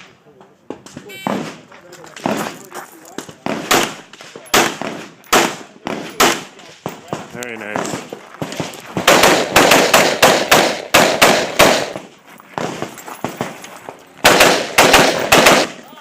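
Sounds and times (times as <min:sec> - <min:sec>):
rifle fired rapidly: 0:03.4 - 0:06.5, 0:07.1 - 0:12.0, 0:14.2 - 0:15.8.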